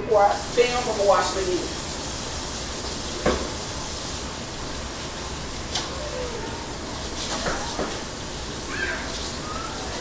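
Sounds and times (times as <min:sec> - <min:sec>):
tap running over hands: 0:03.2 - 0:03.6, 0:07.3 - 0:08.0.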